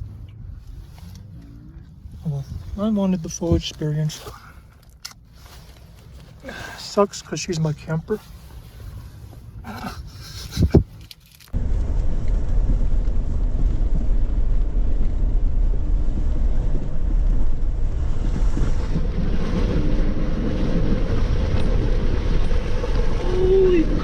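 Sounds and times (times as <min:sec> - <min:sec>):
wind buffeting microphone: 0:11.6 - 0:24.0.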